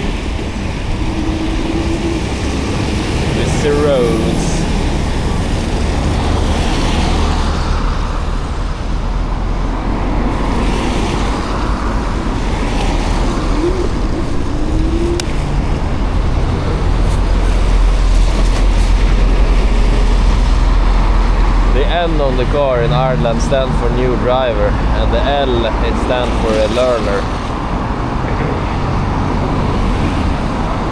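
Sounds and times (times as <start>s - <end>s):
road traffic noise: 0.0s - 30.9s
wind rumble on microphone: 0.0s - 30.9s
faint short rising tone: 13.3s - 17.6s.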